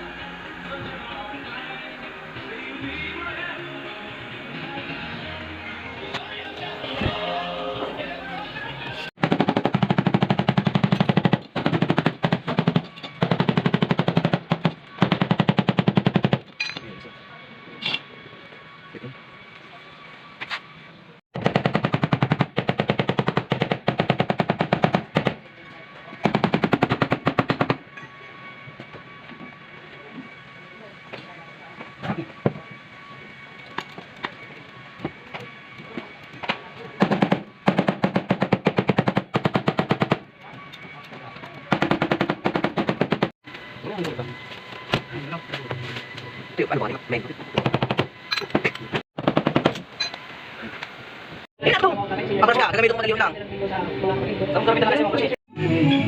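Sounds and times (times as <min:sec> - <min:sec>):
rapid mechanical hammering: 0:09.2 - 0:16.7, 0:21.4 - 0:27.9, 0:33.4 - 0:43.3, 0:47.5 - 0:48.2, 0:48.9 - 0:49.9.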